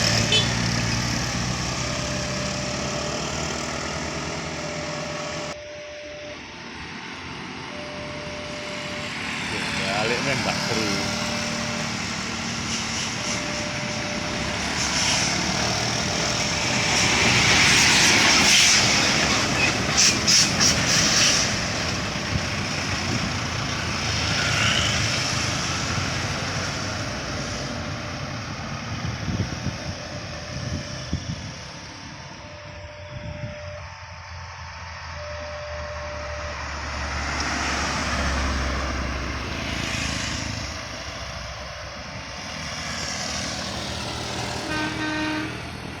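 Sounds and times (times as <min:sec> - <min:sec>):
heavy vehicle passing by: 0:00.0 - 0:05.6, 0:06.2 - 0:46.0.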